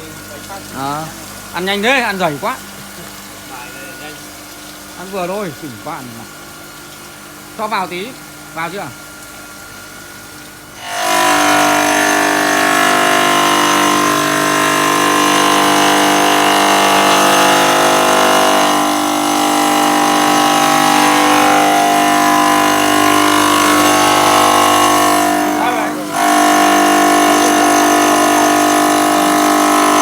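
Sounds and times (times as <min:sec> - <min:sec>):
stone cutting router whining: 0:10.8 - 0:30.0.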